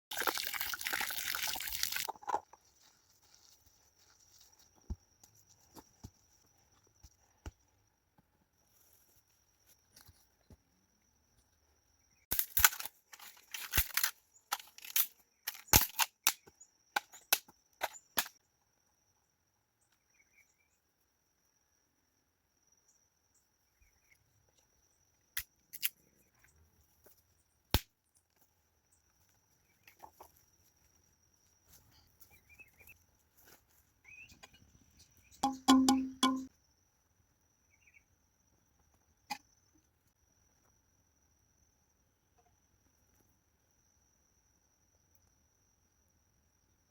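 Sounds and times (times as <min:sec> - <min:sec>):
campfire wood crackling: 0:00.1 - 0:02.2.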